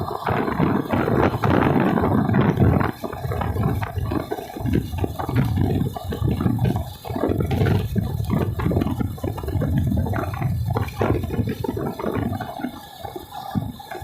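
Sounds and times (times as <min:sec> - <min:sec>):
water rushing and splashing: 0:00.0 - 0:14.0.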